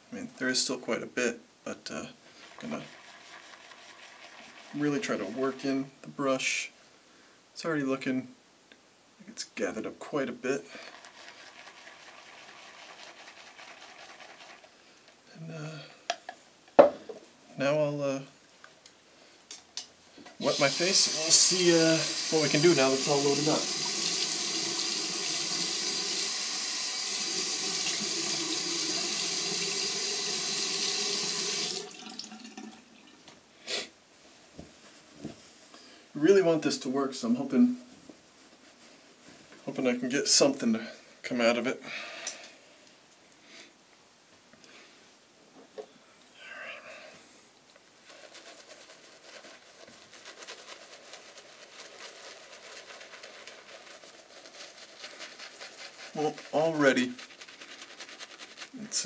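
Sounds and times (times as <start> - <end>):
shaving brush scratching lather: 2.4 - 5.7, 10.8 - 14.8, 20.4 - 25.8, 48.0 - 59.0
sink tap running: 20.4 - 32.4.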